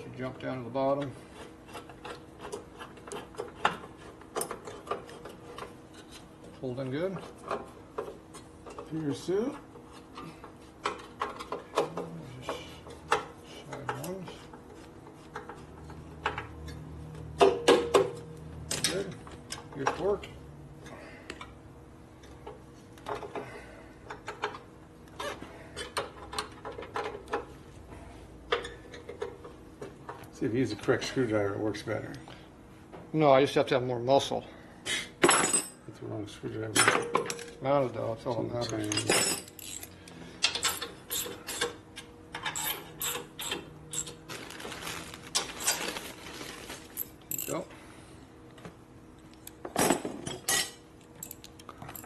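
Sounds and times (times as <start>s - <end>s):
wrench ratcheting metallic clicks: 38.7s - 39.9s
hand tools clicking on metal: 38.7s - 41.8s, 47.3s - 47.6s, 51.0s - 52.0s.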